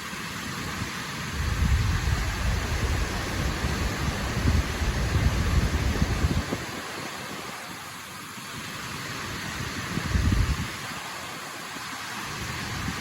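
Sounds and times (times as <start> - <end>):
waterfall roaring: 0.0 - 13.0
wind buffeting microphone: 0.6 - 7.6, 9.3 - 10.9, 12.3 - 13.0.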